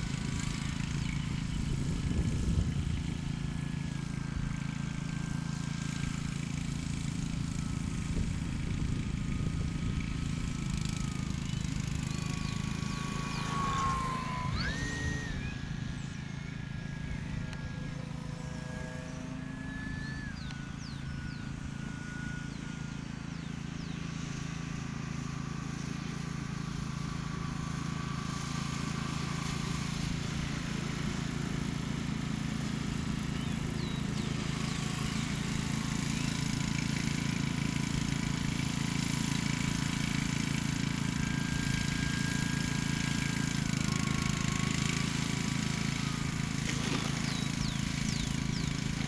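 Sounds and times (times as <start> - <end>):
faint high whine: 0.1 - 31.5.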